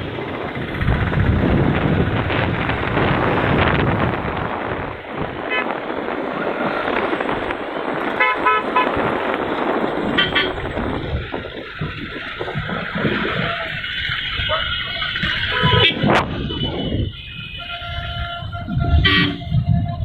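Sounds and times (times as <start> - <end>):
steady rushing noise: 0.0 - 20.0
horn toots: 8.1 - 9.4, 10.0 - 10.8, 14.4 - 20.0.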